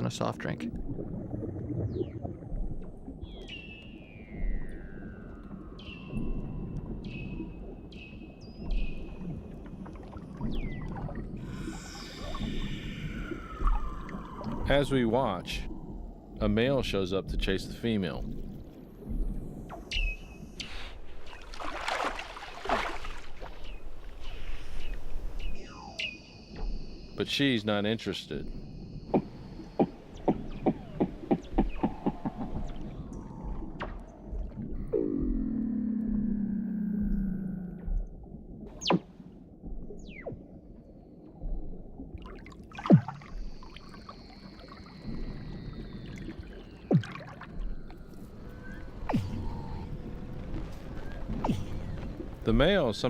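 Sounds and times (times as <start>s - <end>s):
seals whistling underwater: 3.2s - 9.4s, 10.4s - 15.2s, 19.7s - 21.6s, 23.5s - 27.2s, 28.5s - 35.5s, 38.7s - 39.2s, 42.3s - 52.4s.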